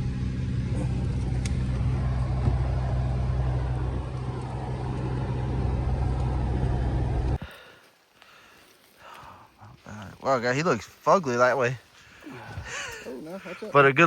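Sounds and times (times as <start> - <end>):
vehicle engine hum: 0.0 - 7.4
road noise: 0.0 - 7.7.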